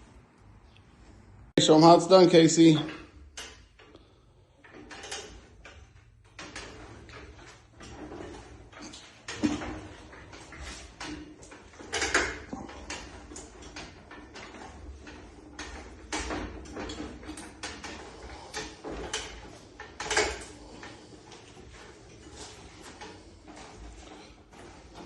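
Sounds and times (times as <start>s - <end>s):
metal hardware clunking and rattling: 2.5s - 25.0s.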